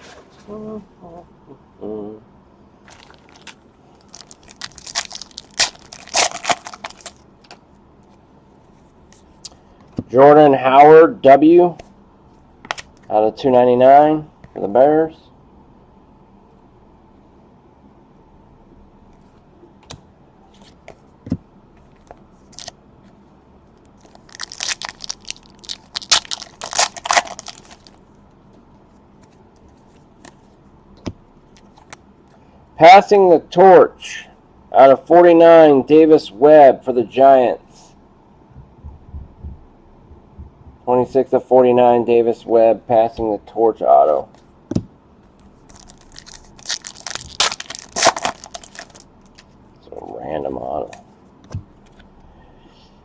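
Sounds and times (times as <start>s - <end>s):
card pack wrapper tearing and crinkling: 2.9s - 7.2s, 22.5s - 22.7s, 24.0s - 28.0s, 45.7s - 49.4s.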